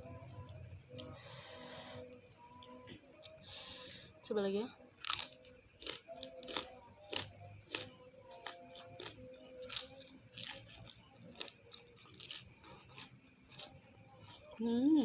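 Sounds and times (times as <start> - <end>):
crunching greens being chewed: 5.0 - 14.6.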